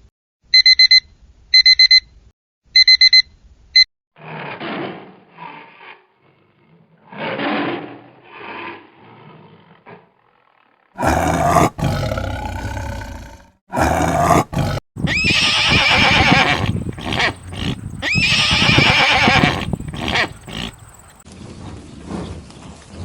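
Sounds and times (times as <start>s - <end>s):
big cat roaring: 11.0s - 14.8s, 15.9s - 17.9s, 19.3s - 20.8s
horse whinnying: 11.0s - 20.8s.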